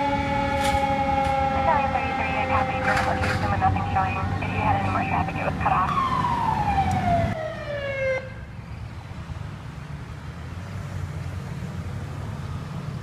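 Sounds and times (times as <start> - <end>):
fire truck siren winding down: 0.0 - 8.4.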